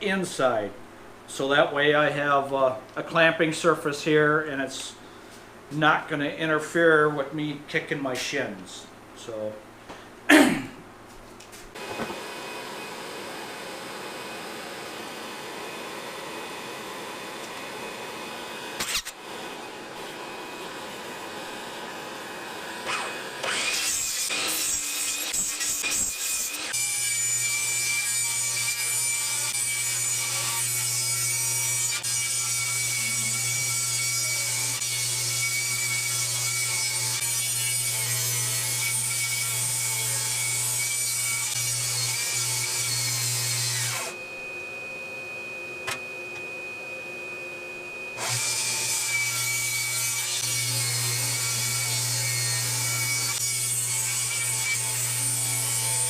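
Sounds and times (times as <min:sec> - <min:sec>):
power saw cutting lumber: 0:11.8 - 0:44.2, 0:48.1 - 0:56.0.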